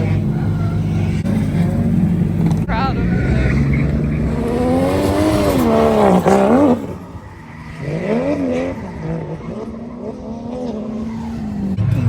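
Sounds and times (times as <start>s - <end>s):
car engine revving hard: 0.0s - 12.0s
tyre squeal: 2.4s - 12.0s.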